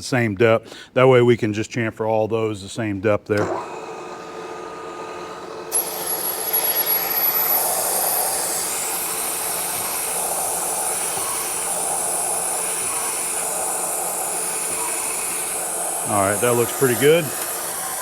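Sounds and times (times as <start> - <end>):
milling machine spindle running: 3.4 - 18.0
compressed air hiss: 4.0 - 18.0
thin high whistle: 5.8 - 18.0.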